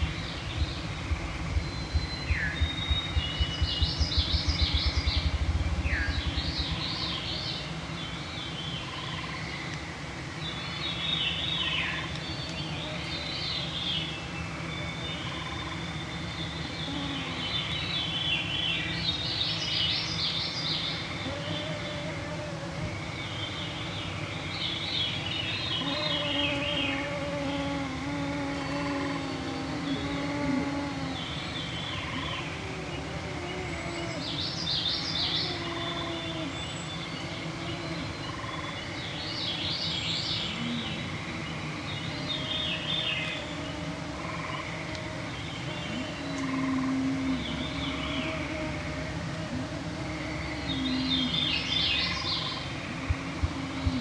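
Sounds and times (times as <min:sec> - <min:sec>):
songbirds singing: 0:00.0 - 0:54.0
mosquitoes whining: 0:15.3 - 0:19.1, 0:20.8 - 0:23.9, 0:25.5 - 0:54.0.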